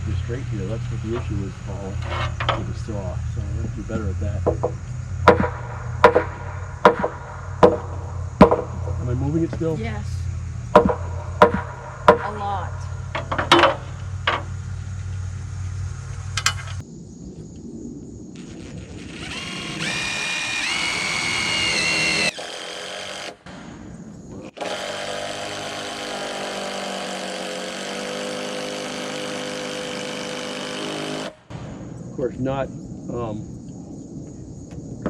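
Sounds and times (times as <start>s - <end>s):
power drill driving screws: 19.0s - 23.4s, 24.6s - 31.3s.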